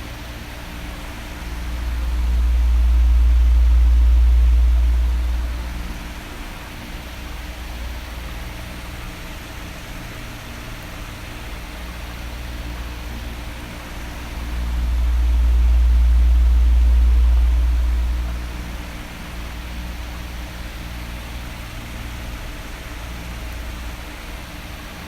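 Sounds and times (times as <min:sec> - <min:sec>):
electric fan running: 0:00.0 - 0:25.0.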